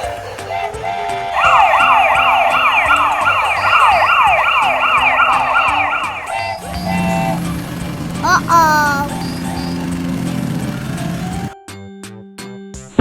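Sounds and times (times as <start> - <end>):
toy electronic siren: 0.4 - 7.5.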